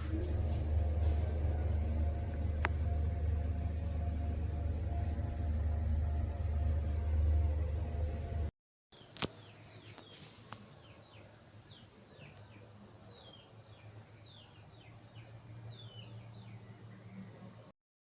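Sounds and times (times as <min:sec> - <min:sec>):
steady low hum: 0:00.0 - 0:08.5.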